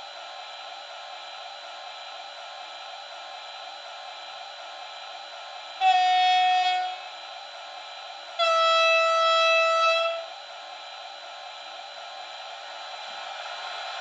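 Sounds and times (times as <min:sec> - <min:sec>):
model locomotive horn blasts: 0:05.8 - 0:07.1, 0:08.4 - 0:10.3.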